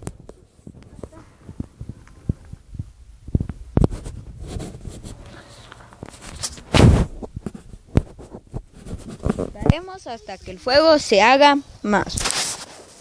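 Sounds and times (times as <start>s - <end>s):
fire rushing: 0.0s - 12.8s
twigs cracking in fire: 12.0s - 13.0s.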